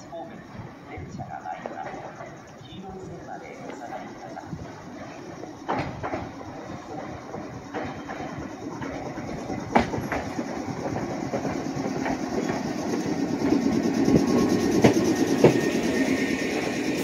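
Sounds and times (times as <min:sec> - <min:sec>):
train wheels rumbling: 0:00.0 - 0:17.0
wheels clicking over rail joints: 0:03.6 - 0:15.9.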